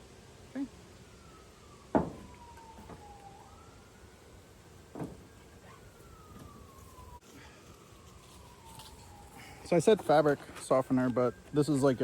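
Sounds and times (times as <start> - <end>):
distant siren wailing: 0.0 - 12.0
sharp knocks: 1.9 - 3.0.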